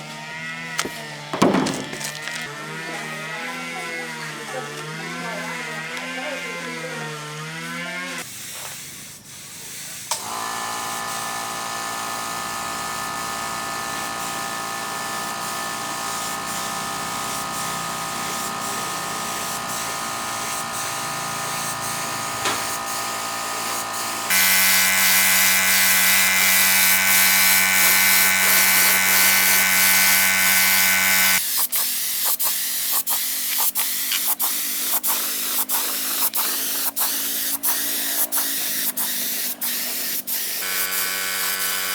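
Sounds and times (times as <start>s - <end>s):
electric motor running: 0.8s - 8.2s, 10.2s - 31.4s, 34.3s - 41.9s
pulsing hissing spray: 23.9s - 41.9s.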